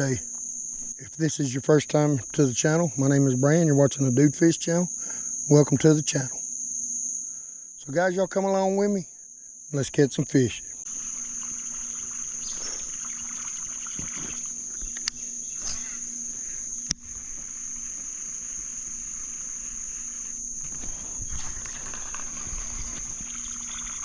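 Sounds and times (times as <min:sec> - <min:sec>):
shrill insect chorus: 0:00.0 - 0:24.0
sharp clicks: 0:14.8 - 0:15.8.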